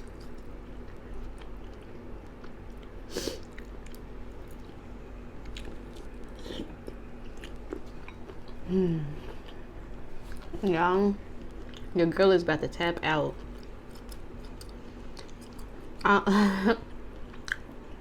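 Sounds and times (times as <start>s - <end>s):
person chewing food: 0.0s - 10.6s, 11.3s - 11.9s, 13.4s - 16.1s, 17.1s - 18.0s.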